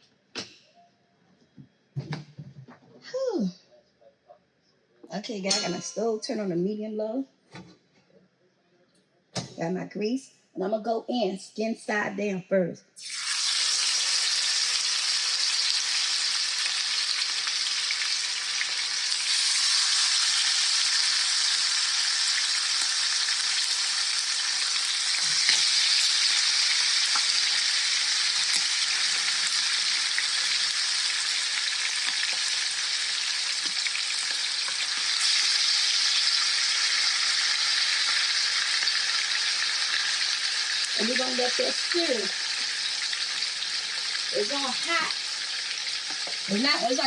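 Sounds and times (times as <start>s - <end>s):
chicken sizzling in a frying pan: 13.0s - 47.0s.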